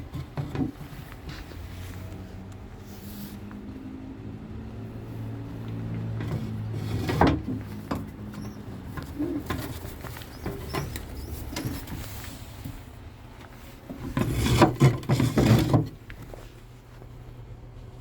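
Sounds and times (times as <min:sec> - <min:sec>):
pigeons cooing: 0:08.4 - 0:11.9.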